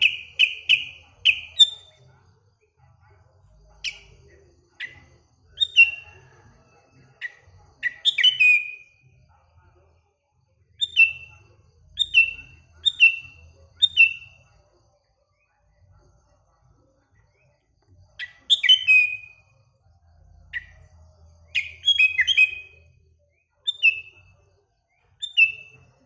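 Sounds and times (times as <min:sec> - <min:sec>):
bird chirping sharply: 0:00.0 - 0:01.9, 0:07.8 - 0:08.9, 0:21.6 - 0:22.8.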